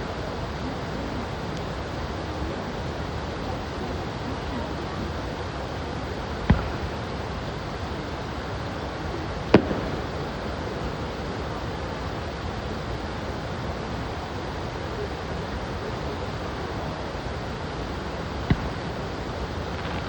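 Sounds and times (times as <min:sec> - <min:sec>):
steady rushing noise: 0:00.0 - 0:20.0
fireworks bursting: 0:06.1 - 0:07.9, 0:09.4 - 0:11.1, 0:17.9 - 0:20.0.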